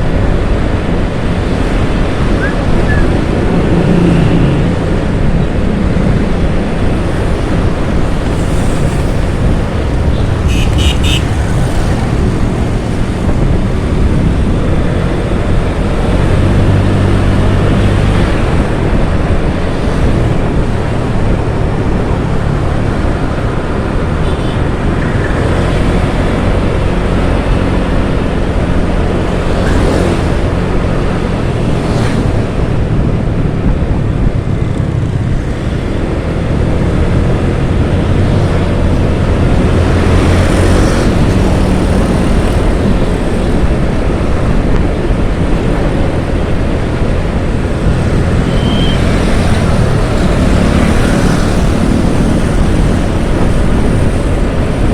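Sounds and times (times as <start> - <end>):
motorcycle engine: 0.0 - 21.2, 34.8 - 54.9
road noise: 0.0 - 54.9
wind rumble on microphone: 0.0 - 54.9.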